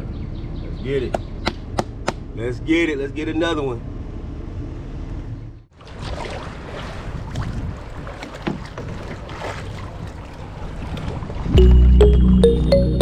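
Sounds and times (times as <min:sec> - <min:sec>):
water splashing around canoe: 0:05.7 - 0:11.6.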